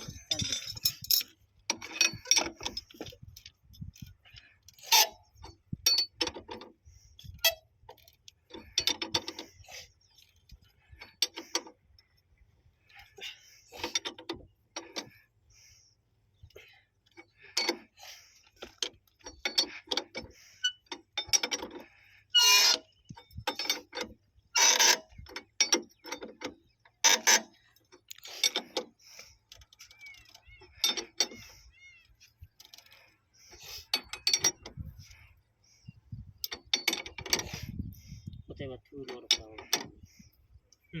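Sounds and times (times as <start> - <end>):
hand tools clanking on metal: 0.0 - 4.0, 4.8 - 9.8, 13.2 - 15.3, 17.2 - 27.6, 28.2 - 31.6, 32.6 - 35.3, 36.4 - 37.7, 38.9 - 40.2.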